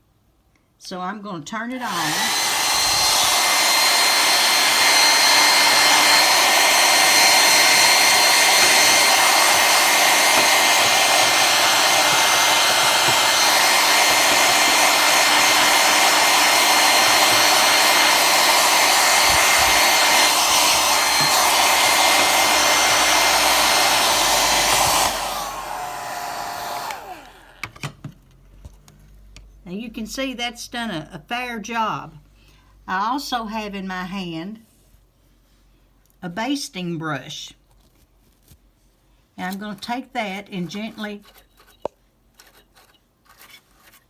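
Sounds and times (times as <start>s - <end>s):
motor winding down: 1.8s - 27.7s
hair dryer running: 1.8s - 27.9s.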